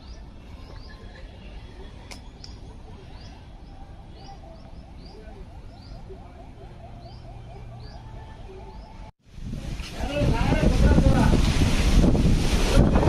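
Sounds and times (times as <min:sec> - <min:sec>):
bird high chirp: 0:00.0 - 0:09.1.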